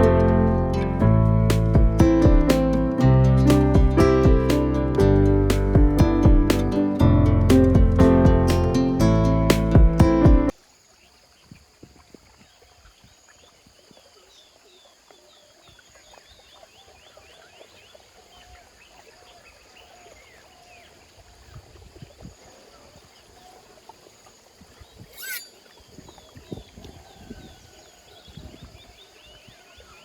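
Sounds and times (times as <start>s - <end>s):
sharp rising bird call: 25.1s - 25.5s.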